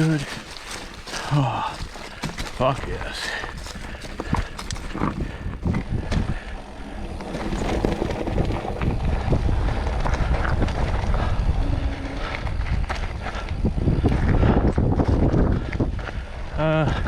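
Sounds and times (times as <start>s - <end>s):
bike tyres rumbling on dirt: 0.0s - 17.0s
wind buffeting microphone: 0.0s - 17.0s.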